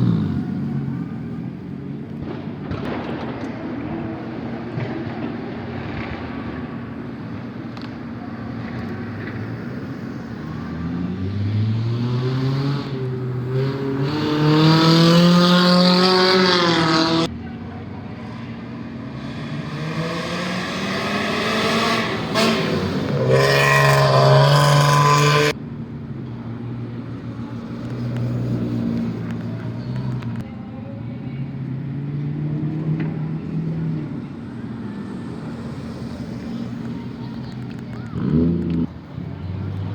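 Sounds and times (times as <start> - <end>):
car engine revving: 8.8 - 17.3, 18.2 - 25.6, 34.8 - 39.9.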